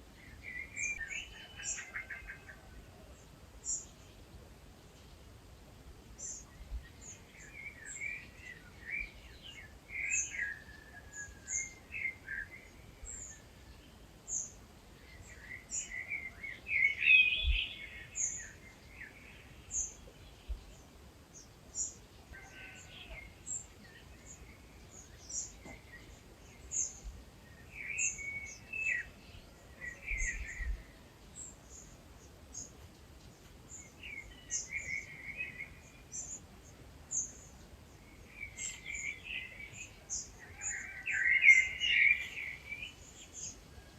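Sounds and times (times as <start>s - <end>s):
birds warbling song: 0.1s - 5.4s, 6.1s - 43.9s.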